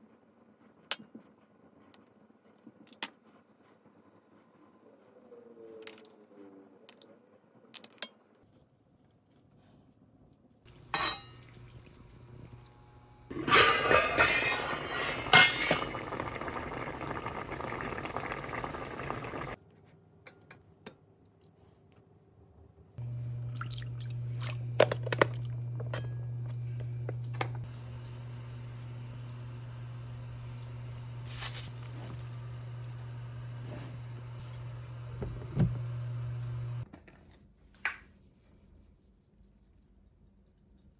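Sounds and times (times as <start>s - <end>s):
dishes and utensils clinking: 10.7s - 12.0s, 13.3s - 17.8s
steady low hum: 23.0s - 36.9s.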